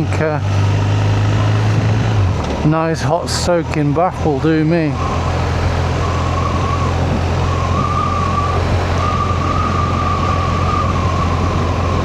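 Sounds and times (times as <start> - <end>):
motorcycle engine and wind rumble: 0.0 - 12.0
thin whine: 4.6 - 12.0.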